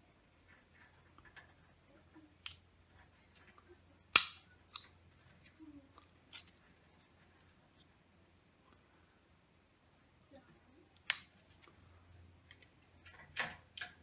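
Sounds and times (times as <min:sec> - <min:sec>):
loud sharp snap: 0:04.2 - 0:04.4
light clicks and ticks: 0:12.4 - 0:14.0.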